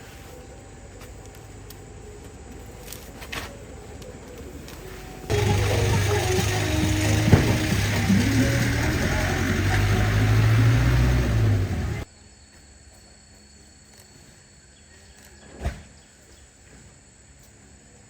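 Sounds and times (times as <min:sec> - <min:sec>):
outdoor background noise: 0:00.0 - 0:18.0
truck engine humming: 0:04.0 - 0:12.1
thump: 0:07.2 - 0:08.0.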